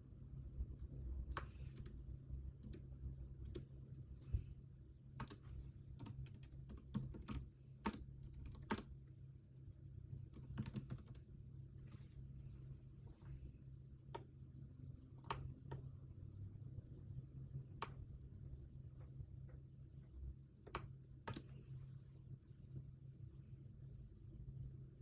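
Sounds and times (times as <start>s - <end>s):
typing on computer keyboard: 1.3s - 2.0s, 2.6s - 3.7s, 5.2s - 8.9s, 10.3s - 11.2s, 20.8s - 21.5s.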